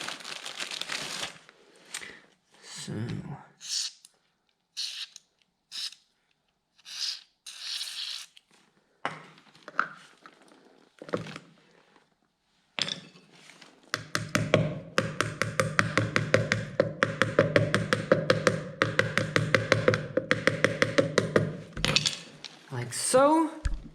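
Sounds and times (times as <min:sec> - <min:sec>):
tapping music beat: 0:15.0 - 0:21.5.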